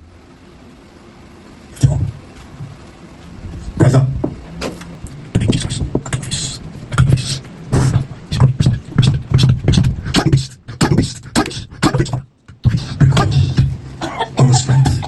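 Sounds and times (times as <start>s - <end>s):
person making rhythmic vocal bursts: 5.0s - 15.0s.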